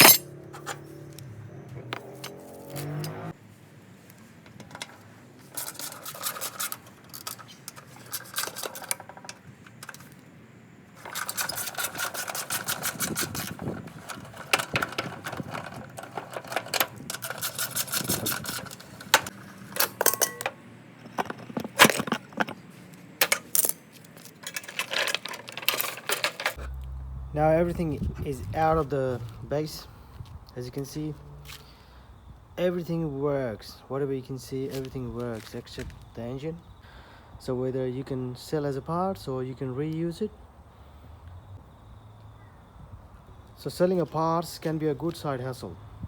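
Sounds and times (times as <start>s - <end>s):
metal tools clicking and rattling: 0.0s - 0.8s, 4.5s - 10.2s, 11.0s - 22.6s, 23.2s - 26.6s.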